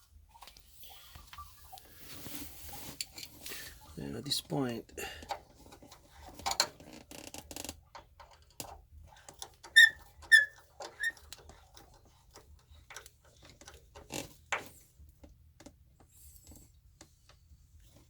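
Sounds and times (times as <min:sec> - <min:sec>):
high squeaks: 0:09.8 - 0:11.2.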